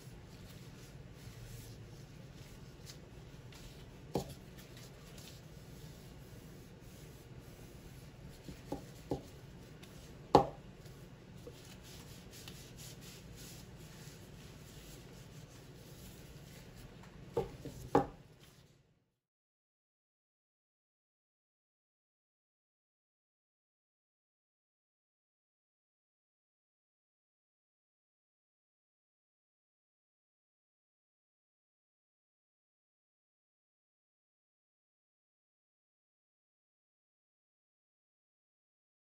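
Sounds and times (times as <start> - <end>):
low steady hum: 0.0 - 18.7.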